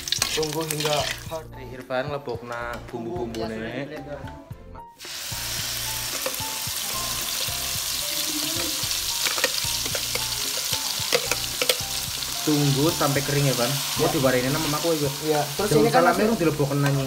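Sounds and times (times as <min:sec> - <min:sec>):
spice paste sizzling in oil: 0:00.0 - 0:01.3, 0:05.0 - 0:17.0
spoon clicking on pan: 0:08.6 - 0:11.9.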